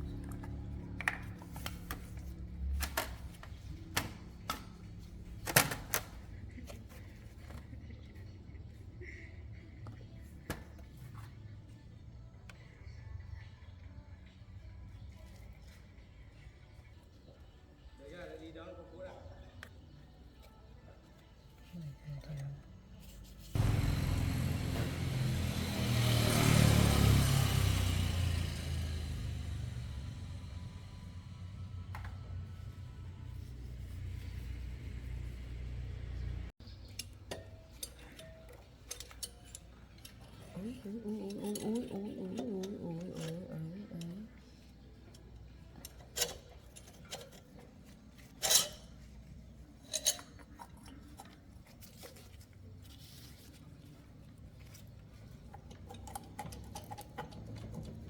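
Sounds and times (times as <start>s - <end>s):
motorcycle engine revving: 23.6s - 32.6s
metal tools clicking and knocking: 36.6s - 44.4s, 45.0s - 49.2s, 49.8s - 52.0s, 55.4s - 58.0s.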